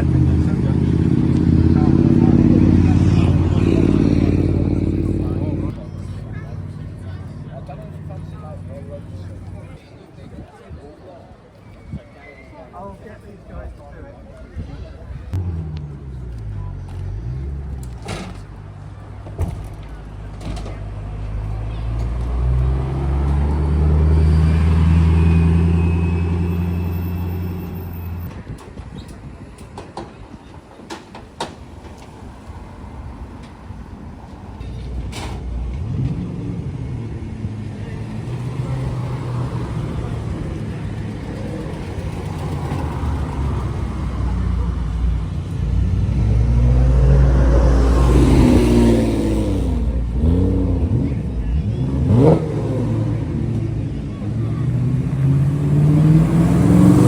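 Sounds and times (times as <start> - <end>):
race car engine revving: 0.0 - 9.8, 45.4 - 57.0
vehicle engine idling: 0.0 - 9.9.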